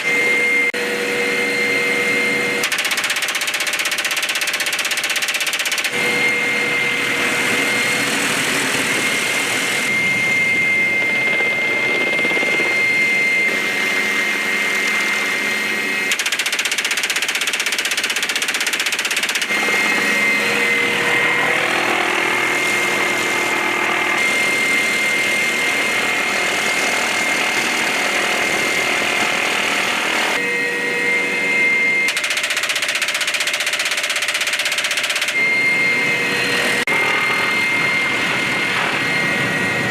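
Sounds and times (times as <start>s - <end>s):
helicopter turbine whine and rotor: 0.0s - 39.9s.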